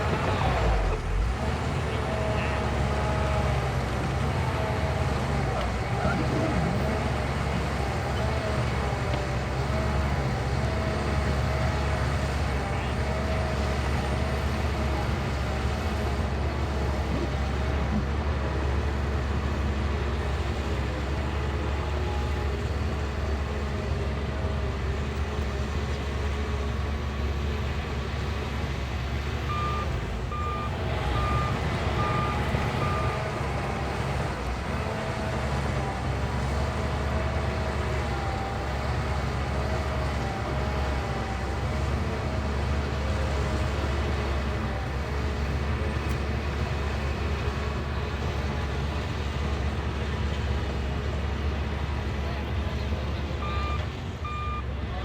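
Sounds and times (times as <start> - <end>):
bulldozer diesel engine droning: 0.0 - 55.0
reversing alarm beeps: 29.5 - 33.4, 53.4 - 54.7.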